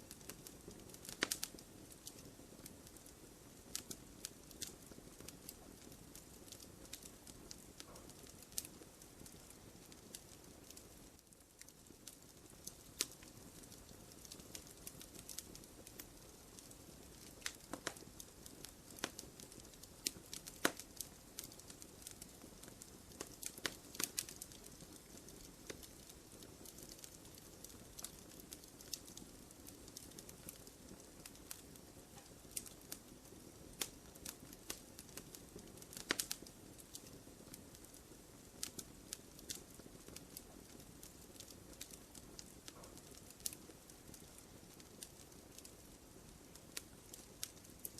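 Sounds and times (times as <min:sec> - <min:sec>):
wood fire crackling: 0:00.0 - 0:47.9.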